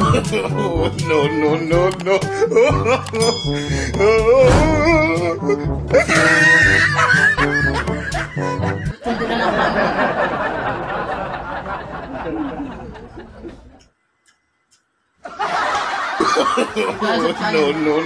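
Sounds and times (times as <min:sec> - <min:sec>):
people laughing: 0:00.0 - 0:01.7, 0:05.9 - 0:13.8, 0:15.2 - 0:18.0.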